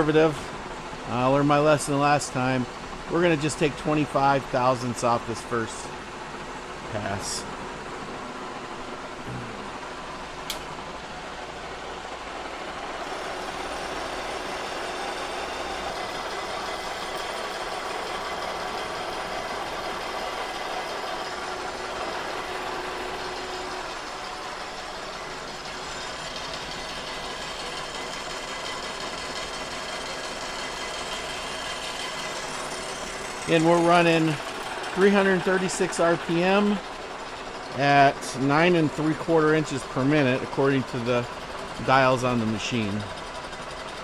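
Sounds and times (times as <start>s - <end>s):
milling machine cutting metal: 11.9s - 44.0s.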